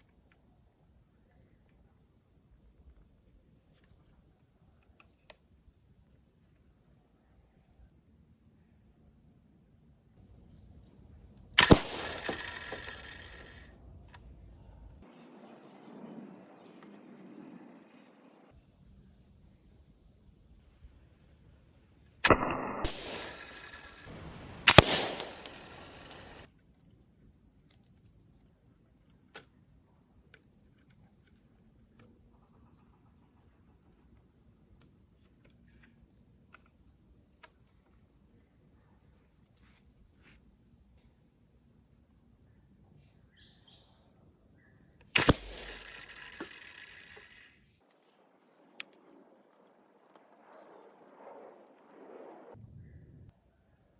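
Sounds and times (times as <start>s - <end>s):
high insect trill: 0.0s - 15.1s, 18.5s - 53.9s
rattling noise: 11.6s - 13.6s
slingshot snap: 11.6s - 13.6s, 22.3s - 26.5s, 45.1s - 47.4s.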